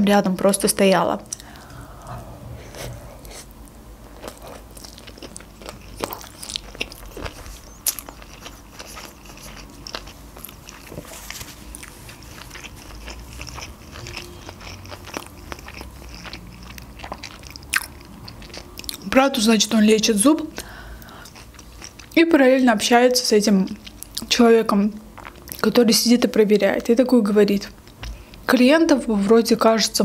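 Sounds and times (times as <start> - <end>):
close-miked chewing: 2.9 - 19.4, 20.6 - 24.4, 25.2 - 27.0.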